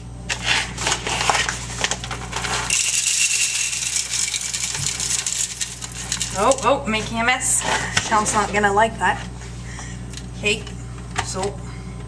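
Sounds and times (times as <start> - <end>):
coffee beans rattling into grinder: 0.3 - 6.7.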